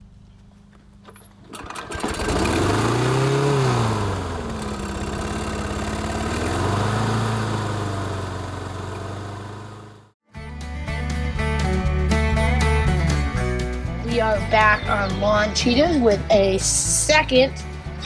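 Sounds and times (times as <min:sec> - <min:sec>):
lawn mower engine running: 0:01.0 - 0:10.2.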